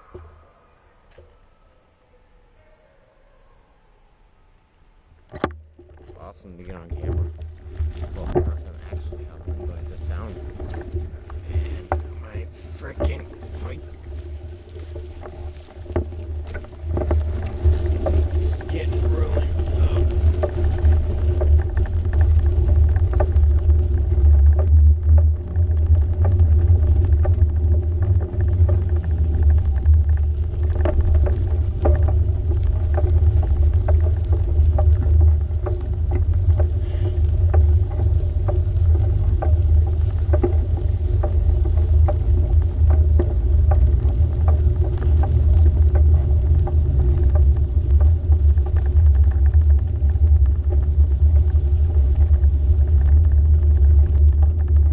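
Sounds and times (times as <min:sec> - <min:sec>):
bike rumble in motion: 0:00.0 - 0:02.6, 0:03.6 - 0:54.9
tyre noise on trail: 0:00.0 - 0:54.9
small clicks and rattles: 0:05.2 - 0:54.9
wind buffeting microphone: 0:06.1 - 0:54.9.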